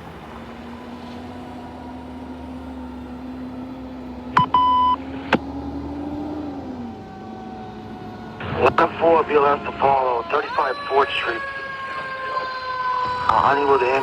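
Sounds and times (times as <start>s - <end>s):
low engine hum: 0.0s - 14.0s
short electronic beep: 4.4s - 5.0s.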